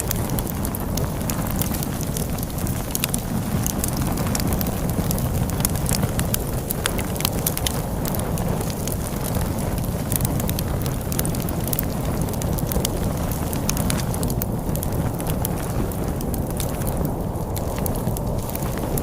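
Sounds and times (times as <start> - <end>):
storm wind rumbling: 0.0 - 19.0
wood fire crackling and popping: 0.0 - 19.0.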